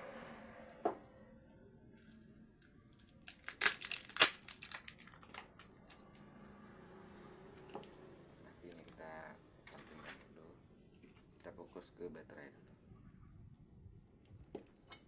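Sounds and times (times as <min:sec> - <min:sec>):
smartphone parts crinkling and clicking: 0:03.0 - 0:06.0.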